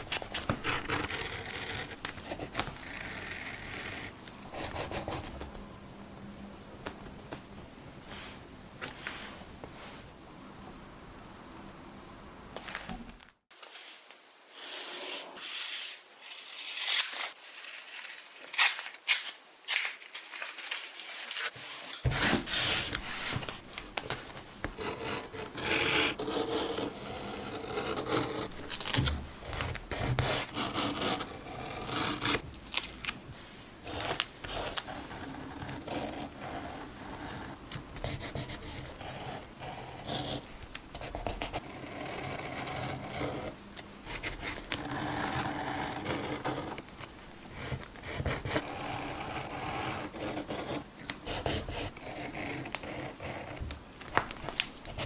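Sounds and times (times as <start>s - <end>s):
paper rubbing and scratching: 0.0s - 5.3s, 13.7s - 32.4s
tape peeling: 15.8s - 24.1s.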